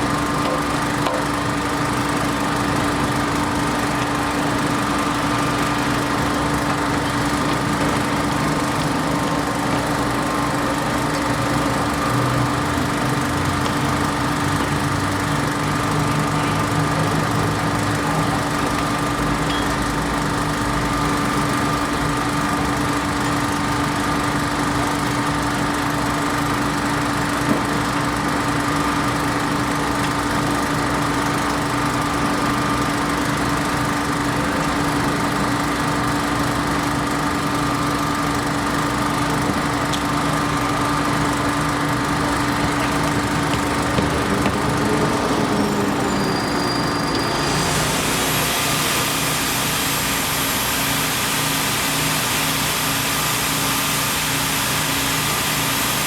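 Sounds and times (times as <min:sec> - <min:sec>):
engine humming: 0:38.1 - 0:50.2
high hiss: 0:47.5 - 0:56.0.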